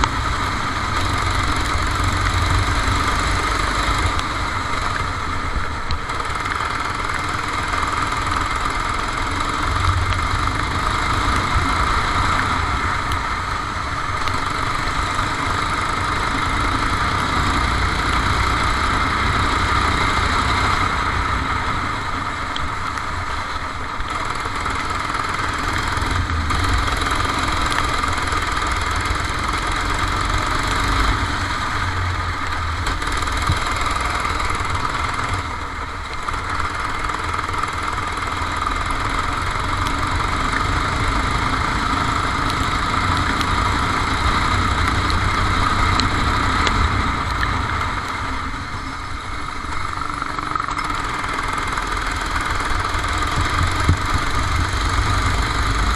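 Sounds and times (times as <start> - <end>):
kart engine running: 0.0 - 55.9.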